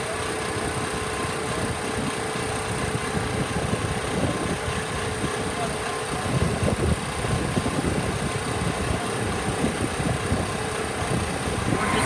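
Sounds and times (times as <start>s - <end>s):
engine-like running noise: 0.0s - 12.0s
low rumble: 11.4s - 12.0s.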